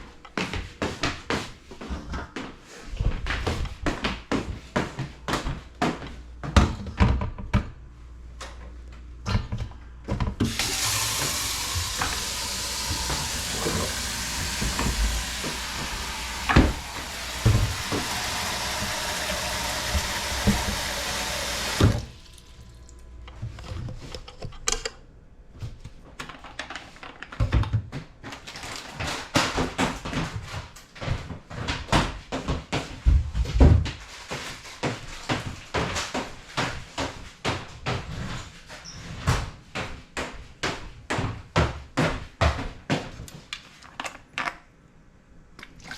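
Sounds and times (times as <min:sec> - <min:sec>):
tap running water into sink: 0:10.4 - 0:23.0.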